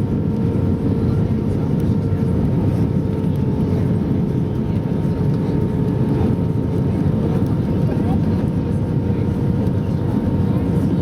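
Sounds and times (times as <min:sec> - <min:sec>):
airliner engine and airflow rumble: 0:00.0 - 0:11.0.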